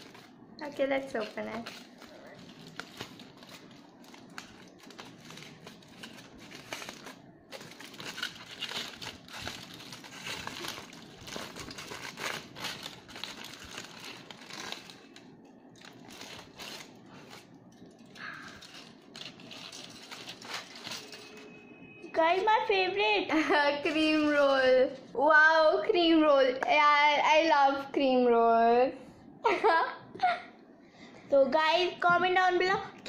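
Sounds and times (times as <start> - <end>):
foil crinkling: 0.0 - 21.6.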